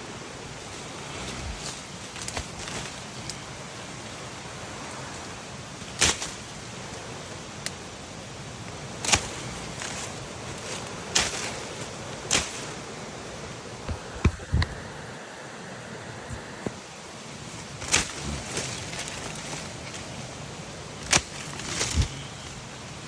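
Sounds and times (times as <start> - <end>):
steady rain hiss: 0.0 - 23.0
walking through wet vegetation: 0.4 - 7.0, 8.9 - 13.2, 16.7 - 23.0.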